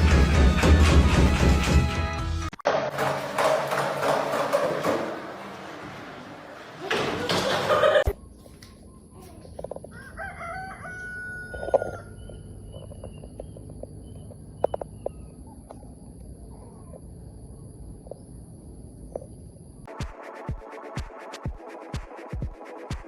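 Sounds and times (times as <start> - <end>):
electronic music: 0.0 - 2.6, 19.9 - 23.0
rooster crowing: 9.8 - 12.4.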